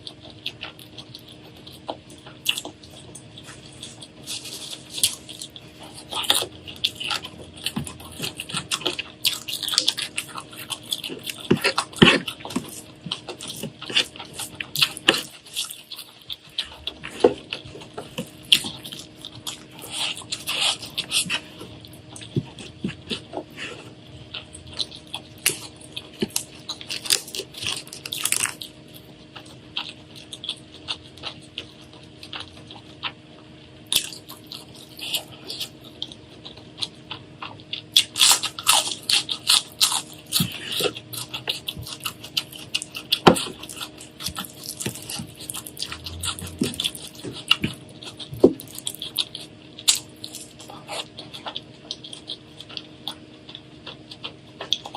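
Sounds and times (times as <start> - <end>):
crunchy food being chewed: 0.0 - 54.9
faint steady hum: 0.0 - 54.9.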